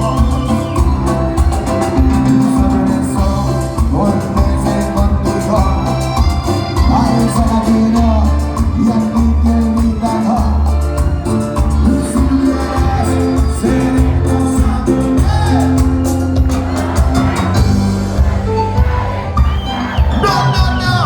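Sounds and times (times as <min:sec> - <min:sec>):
person singing: 0:00.0 - 0:16.0
bass beat: 0:00.0 - 0:21.0
keyboard: 0:00.0 - 0:21.0
live band playing: 0:00.0 - 0:21.0.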